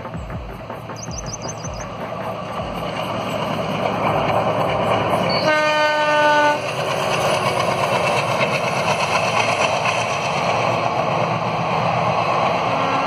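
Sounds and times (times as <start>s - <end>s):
diesel train passing: 0.0s - 13.0s
locomotive horn: 5.3s - 6.6s, 12.7s - 13.0s.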